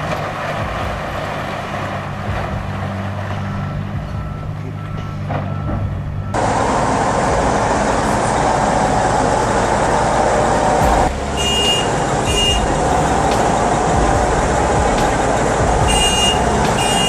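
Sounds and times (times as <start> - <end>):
heavy diesel machinery running: 0.0 - 17.0.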